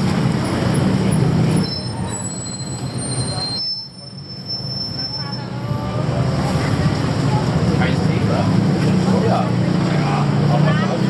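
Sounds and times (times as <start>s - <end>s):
city street rumble: 0.0s - 11.0s.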